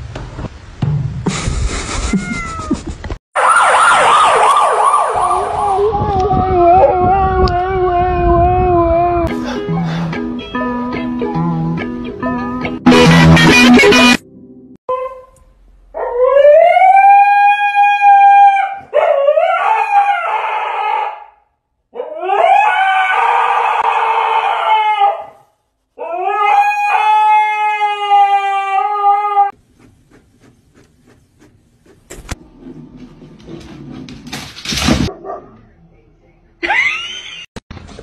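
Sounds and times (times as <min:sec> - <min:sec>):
dog howling: 0:05.3 - 0:09.3, 0:16.0 - 0:21.4, 0:22.0 - 0:25.4, 0:26.0 - 0:29.6.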